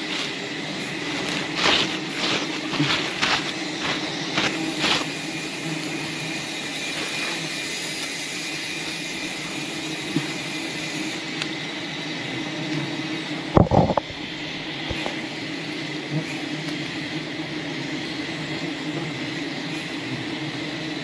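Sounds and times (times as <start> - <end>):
high whine: 0.0 - 11.3
even hiss: 0.0 - 21.0
steady droning hum: 0.0 - 21.0.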